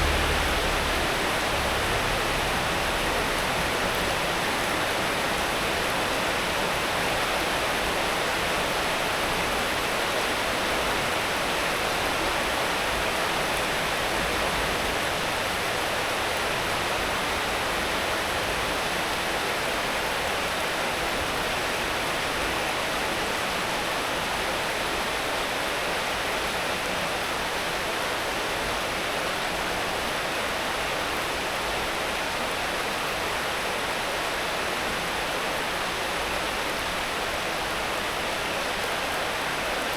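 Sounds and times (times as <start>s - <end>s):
steady rain hiss: 0.0s - 6.6s.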